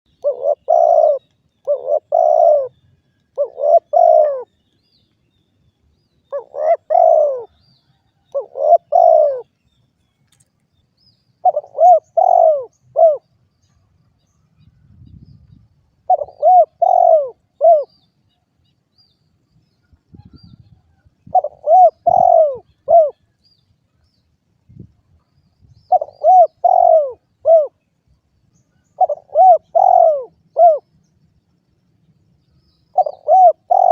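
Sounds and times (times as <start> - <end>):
dove cooing: 0.1 - 4.5, 6.3 - 7.6, 8.3 - 9.5, 11.4 - 13.3, 16.0 - 18.0, 21.3 - 23.3, 25.9 - 27.8, 28.9 - 30.9, 32.9 - 33.9.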